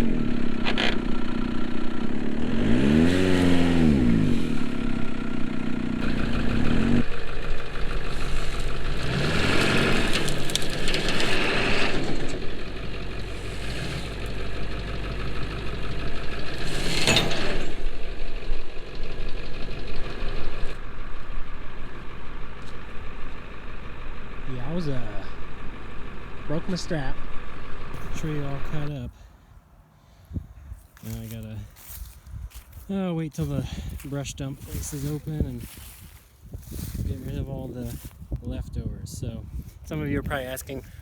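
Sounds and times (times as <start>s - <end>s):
engine revving: 0.0s - 29.2s.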